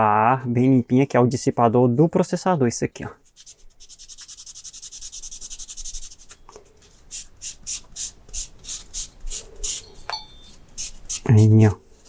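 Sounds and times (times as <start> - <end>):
thermal paste being rubbed off: 3.3 - 6.4, 7.0 - 9.9.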